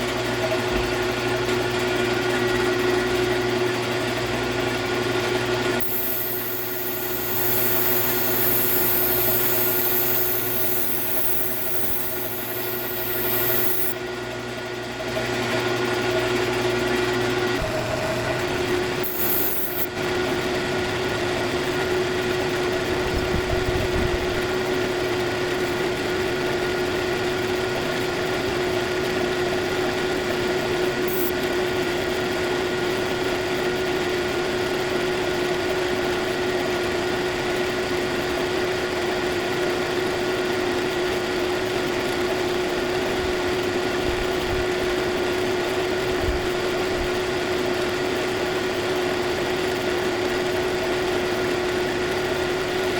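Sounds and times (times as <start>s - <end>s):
brief hiss: 5.8s - 14.0s, 19.0s - 19.9s, 31.1s - 31.4s
surfacing machine humming: 5.8s - 14.0s, 17.6s - 22.8s, 30.9s - 31.5s.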